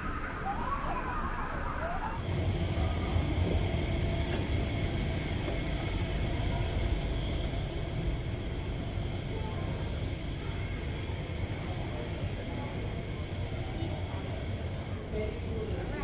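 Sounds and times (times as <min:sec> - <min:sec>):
low mechanical rumble: 0:02.2 - 0:14.2.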